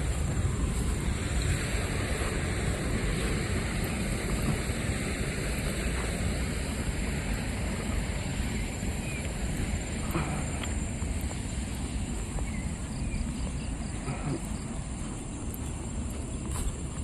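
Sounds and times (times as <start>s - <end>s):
outdoor rumble and hiss: 0.0s - 17.0s.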